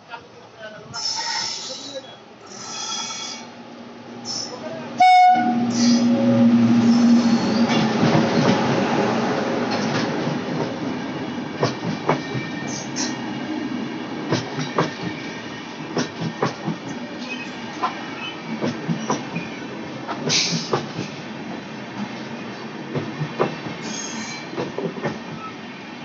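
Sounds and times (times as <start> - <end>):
train rumble: 2.6 - 25.6
train horn: 5.0 - 7.8.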